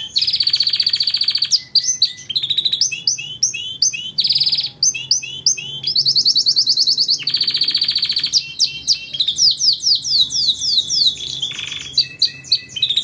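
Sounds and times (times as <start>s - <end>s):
canary singing trills: 0.0s - 13.0s
sweeping bird chirps: 0.0s - 13.0s.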